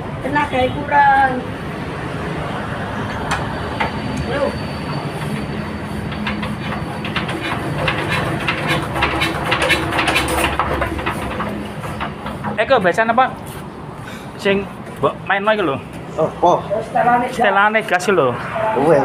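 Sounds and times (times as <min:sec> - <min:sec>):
generator engine humming: 0:02.0 - 0:15.0
clicks and knocks: 0:06.1 - 0:12.7.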